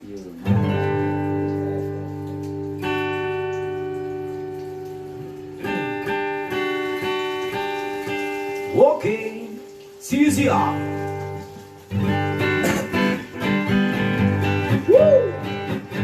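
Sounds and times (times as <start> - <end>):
acoustic guitar strumming: 0.4 - 16.0.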